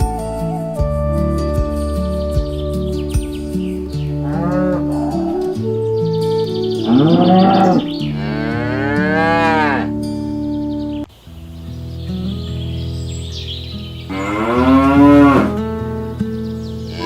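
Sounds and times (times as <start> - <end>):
soft background music: 0.0 - 17.0
cattle mooing: 4.2 - 5.8, 6.8 - 10.0, 14.1 - 15.6.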